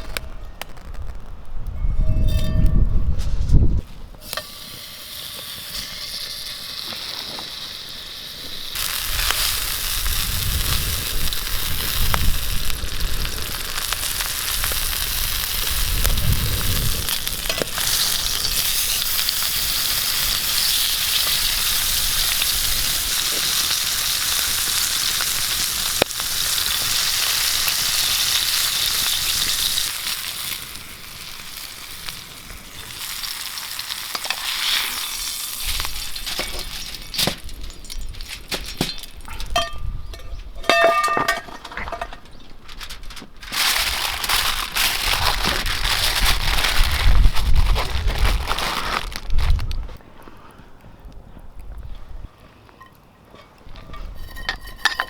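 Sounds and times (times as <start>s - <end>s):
food sizzling in a pan: 4.2s - 38.3s.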